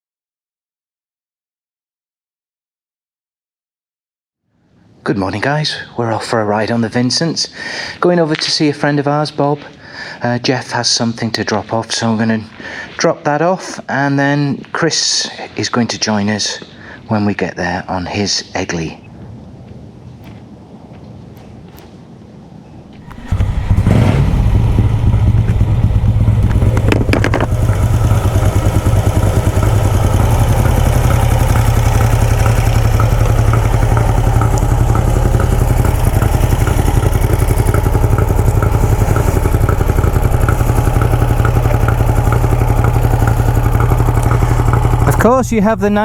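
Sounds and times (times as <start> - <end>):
motorcycle engine idling: 23.0 - 46.0.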